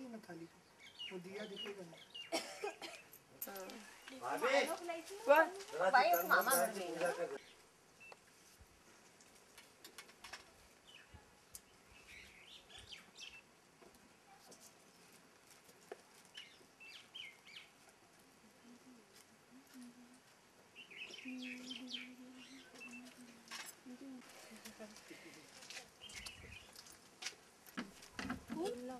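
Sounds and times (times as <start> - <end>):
faint bird chirps: 20.8 - 23.4.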